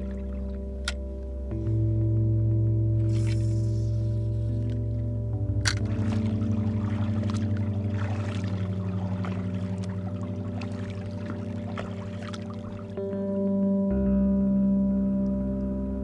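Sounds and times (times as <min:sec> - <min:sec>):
music with pulsing bass: 0:00.0 - 0:16.0
paddle splashing water: 0:05.6 - 0:13.1.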